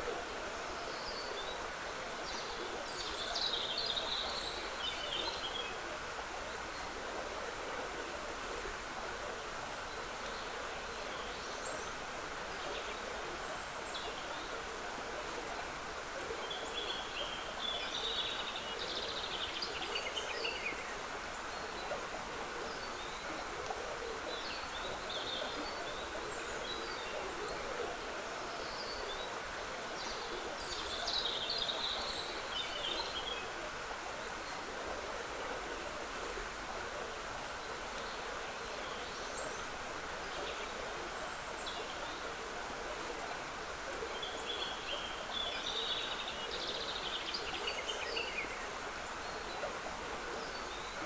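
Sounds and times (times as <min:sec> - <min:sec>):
trickling stream: 0:00.0 - 0:51.0.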